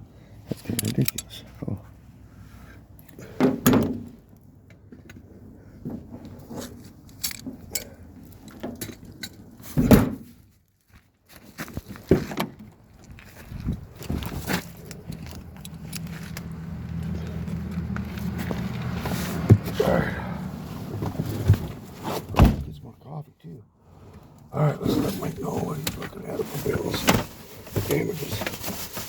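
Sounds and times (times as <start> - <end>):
knocks and clunks: 3.3 - 4.2, 8.6 - 10.4, 17.9 - 19.9, 20.9 - 22.8.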